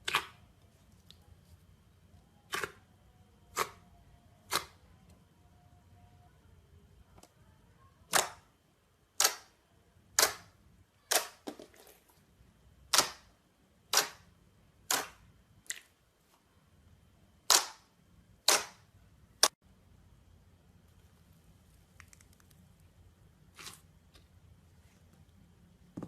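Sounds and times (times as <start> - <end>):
slime popping: 21.8 - 22.8.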